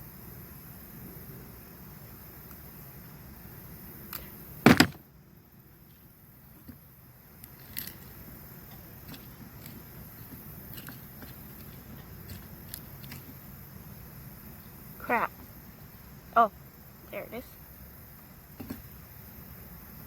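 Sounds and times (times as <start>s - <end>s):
loud knock or snap: 4.7s - 5.0s.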